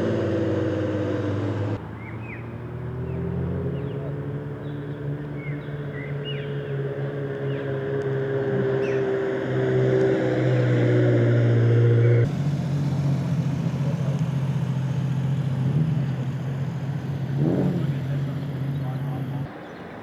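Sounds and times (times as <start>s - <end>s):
car engine running at low revs: 0.0s - 2.1s, 12.1s - 19.5s
second engine steady low note: 12.1s - 19.5s.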